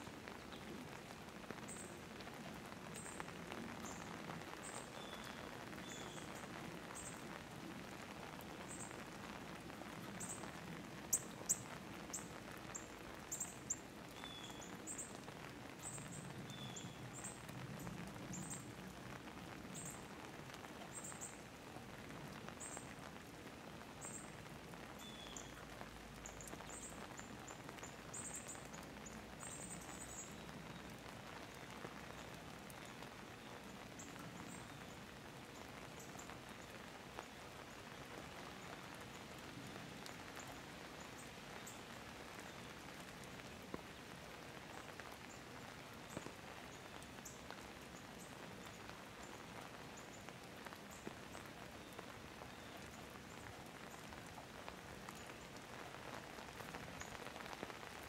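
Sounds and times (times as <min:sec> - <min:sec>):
steady rain falling: 0:00.0 - 0:58.0
sharp water drips: 0:23.9 - 0:58.0.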